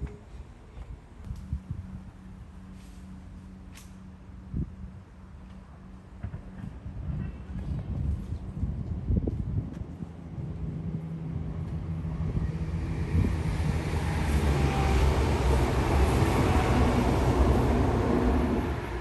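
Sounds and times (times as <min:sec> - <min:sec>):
wheels rushing on rail: 0:00.8 - 0:19.0
diesel engine drone: 0:01.3 - 0:19.0.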